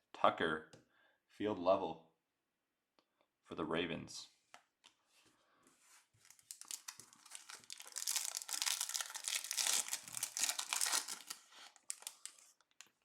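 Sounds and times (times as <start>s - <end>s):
plastic wrapper crinkling and tearing: 6.2s - 13.0s.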